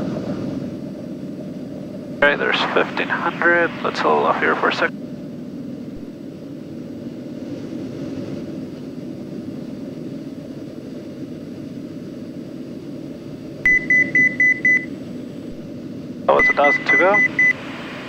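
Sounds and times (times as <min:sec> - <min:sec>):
propeller plane engine drone: 0:00.0 - 0:18.0
high short beeps: 0:13.7 - 0:14.9.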